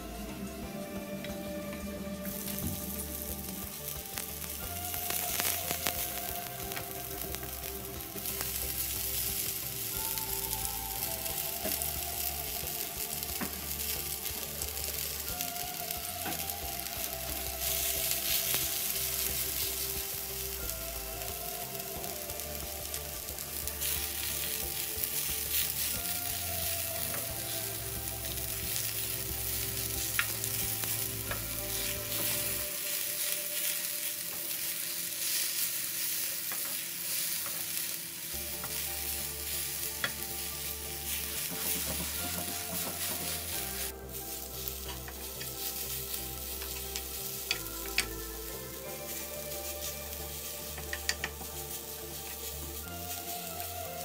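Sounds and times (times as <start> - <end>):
leaves sizzling in hot oil: 0.0 - 54.0.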